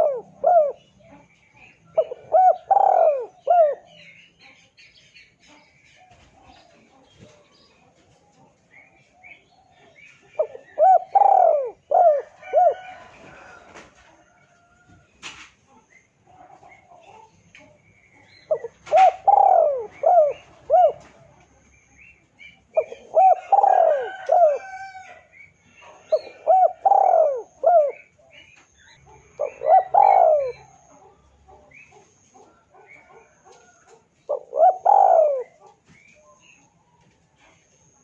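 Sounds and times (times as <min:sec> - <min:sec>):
dove cooing: 0:00.0 - 0:04.1, 0:08.8 - 0:15.0, 0:18.1 - 0:21.7, 0:22.4 - 0:36.6.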